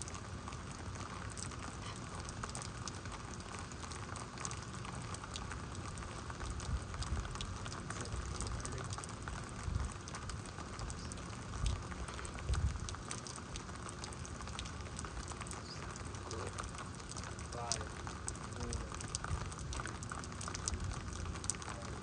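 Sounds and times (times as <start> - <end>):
heavy rain: 0.0 - 22.0
raindrops ticking: 0.0 - 22.0
wind buffeting microphone: 12.4 - 12.9.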